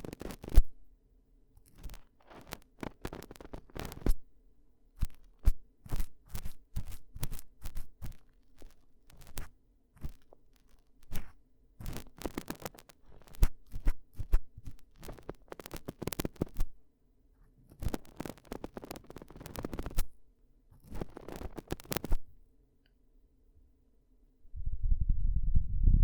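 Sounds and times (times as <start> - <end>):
tool scratching against microphone: 5.0 - 16.7, 17.5 - 20.1, 20.7 - 22.2.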